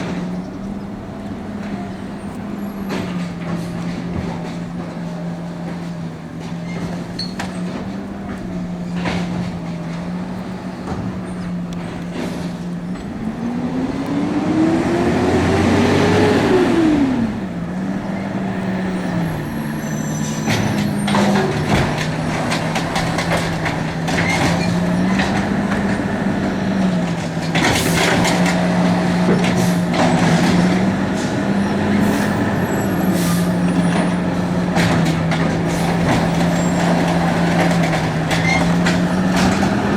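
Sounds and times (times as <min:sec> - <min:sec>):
garbage truck engine running: 0:00.0 - 0:39.9
clanks and knocks: 0:01.6 - 0:13.5, 0:20.2 - 0:31.4, 0:33.6 - 0:39.9.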